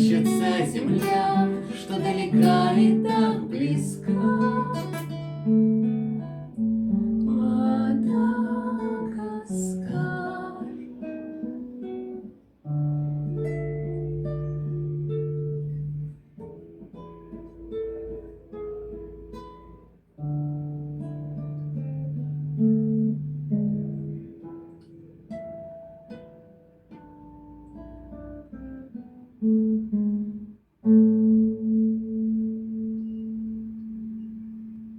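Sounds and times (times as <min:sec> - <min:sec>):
acoustic guitar picked notes: 0:00.0 - 0:34.9
guitar chord ringing: 0:00.0 - 0:34.9.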